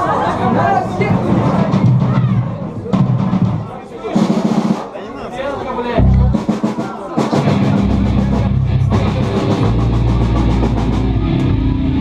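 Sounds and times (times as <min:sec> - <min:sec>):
drum kit with cymbals: 0:01.5 - 0:05.0, 0:06.0 - 0:12.0
bass notes: 0:06.0 - 0:06.6, 0:07.4 - 0:12.0
electric guitar: 0:07.4 - 0:12.0.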